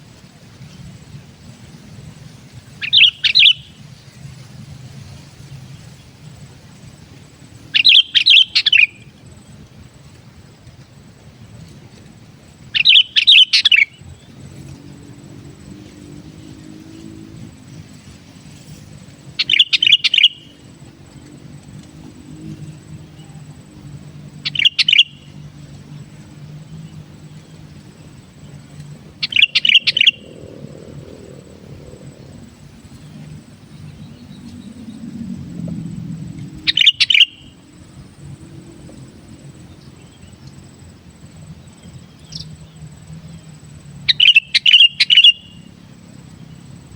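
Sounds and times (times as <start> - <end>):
bird singing bubbly phrases: 2.7 - 3.8, 7.7 - 9.1, 12.7 - 14.3, 19.4 - 20.8, 24.2 - 35.3, 36.5 - 38.4, 44.1 - 46.8.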